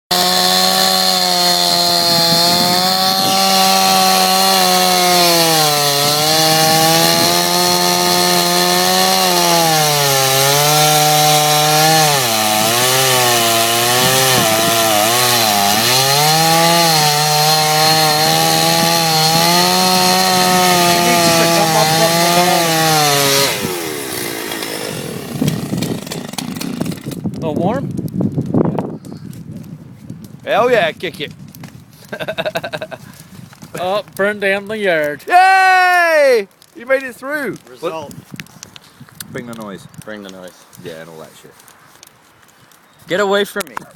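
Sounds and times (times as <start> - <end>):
chainsaw cutting through log: 0.1 - 27.4.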